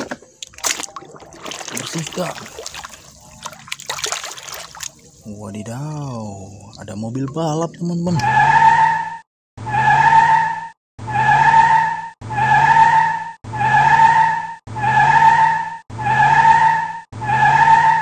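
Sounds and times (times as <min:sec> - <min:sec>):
car tyres squealing: 0:08.2 - 0:18.0.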